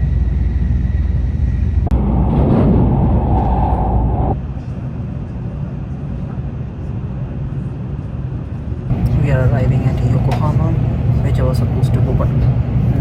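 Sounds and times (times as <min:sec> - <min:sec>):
train low rumble: 0:00.0 - 0:13.0
loud rushing noise: 0:01.8 - 0:04.5.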